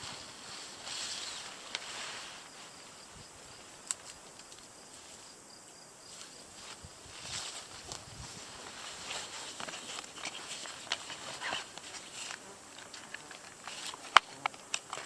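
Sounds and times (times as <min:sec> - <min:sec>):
faint steady high hiss: 0:00.0 - 0:15.0
small sharp ticks: 0:00.9 - 0:02.1, 0:03.6 - 0:05.1, 0:06.2 - 0:15.0.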